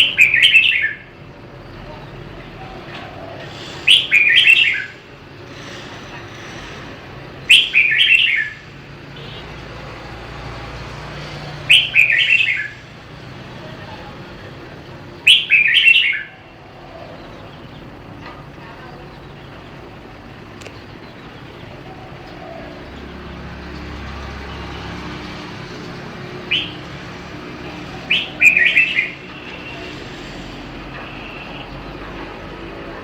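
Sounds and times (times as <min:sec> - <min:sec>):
bird singing warbled phrase: 0:00.0 - 0:01.1, 0:03.1 - 0:05.0, 0:07.5 - 0:08.6, 0:11.7 - 0:12.8, 0:15.2 - 0:18.0, 0:26.5 - 0:26.9, 0:28.0 - 0:29.6.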